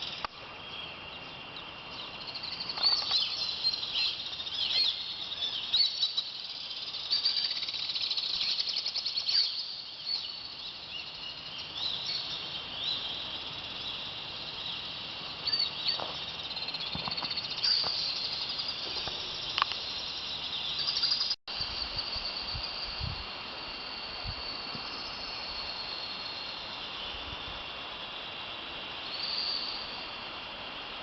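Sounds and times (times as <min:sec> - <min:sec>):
birds chirping and trilling: 0:00.0 - 0:21.4
high insect drone: 0:00.0 - 0:31.0.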